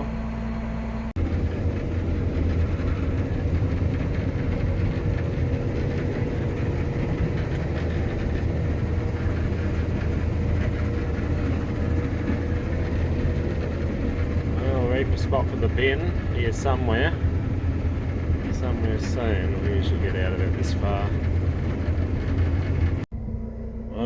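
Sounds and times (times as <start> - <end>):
combine harvester engine hum: 0.0 - 24.0.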